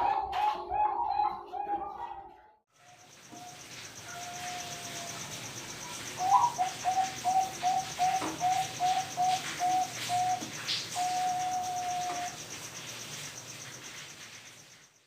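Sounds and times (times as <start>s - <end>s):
dove cooing: 0.0s - 2.3s, 3.4s - 12.5s
faint insect trill: 2.7s - 15.0s.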